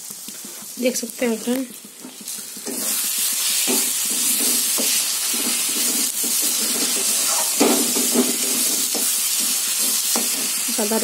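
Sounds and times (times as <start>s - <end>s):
spice paste sizzling in a pan: 0.0s - 11.0s
metal spatula scraping a pan: 2.1s - 10.6s.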